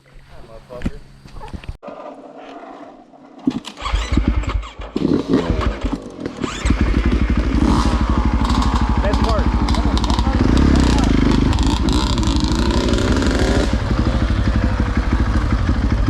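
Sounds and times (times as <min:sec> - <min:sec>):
dirt bike engine starting and revving: 0:03.4 - 0:16.0.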